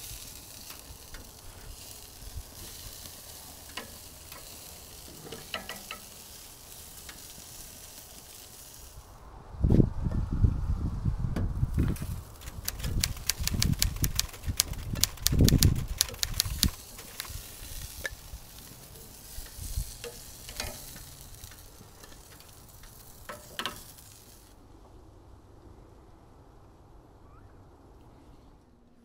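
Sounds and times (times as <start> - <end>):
faint hiss: 0.0 - 29.0
utensil clicks: 12.4 - 18.2.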